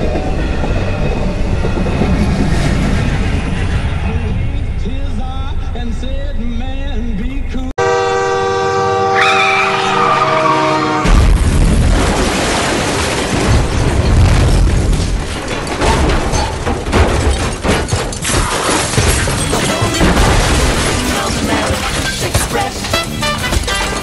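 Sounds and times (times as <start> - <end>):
train passing at speed: 0.0 - 6.8
music: 19.4 - 24.0.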